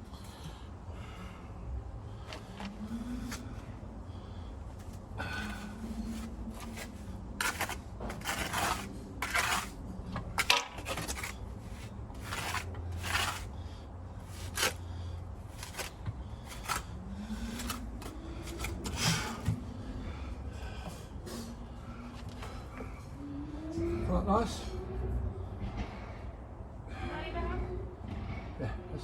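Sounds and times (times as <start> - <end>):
hand tool scraping concrete: 5.4 - 19.4.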